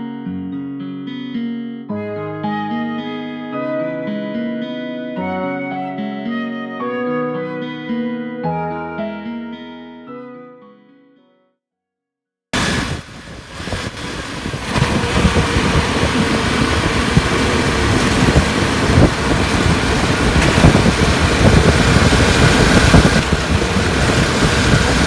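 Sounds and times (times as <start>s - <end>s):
motor engine running: 12.6s - 25.0s.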